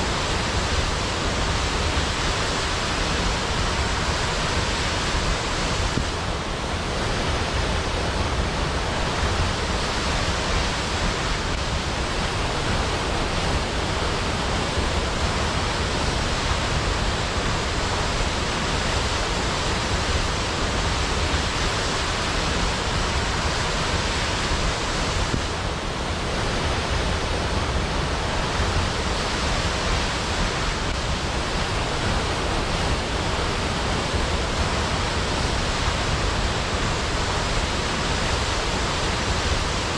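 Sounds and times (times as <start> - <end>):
waterfall with low rumble: 0.0 - 39.9.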